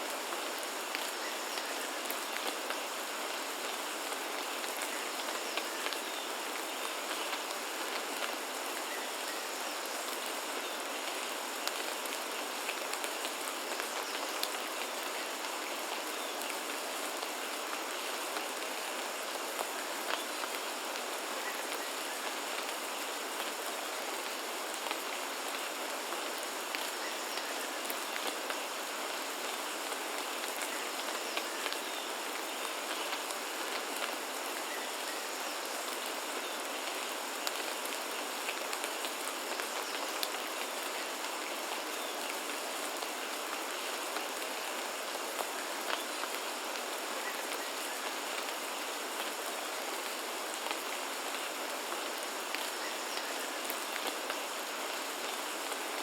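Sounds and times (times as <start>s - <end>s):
rain hiss: 0.0s - 56.0s.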